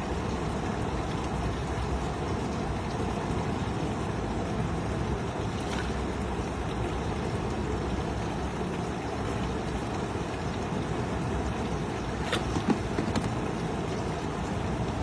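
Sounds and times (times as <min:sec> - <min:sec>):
boat engine rumbling: 0:10.9 - 0:15.0.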